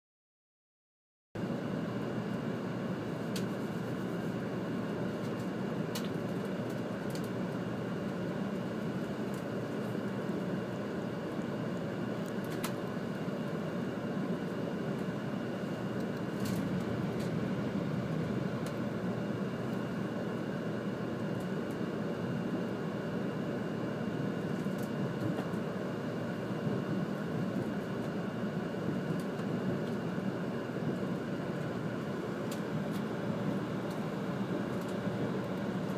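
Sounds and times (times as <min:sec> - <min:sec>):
moving train rumble: 0:02.6 - 0:23.6.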